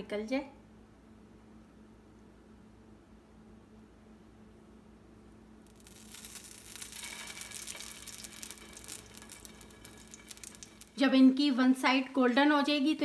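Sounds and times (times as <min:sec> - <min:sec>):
hot oil sizzling and crackling: 0:05.6 - 0:12.5.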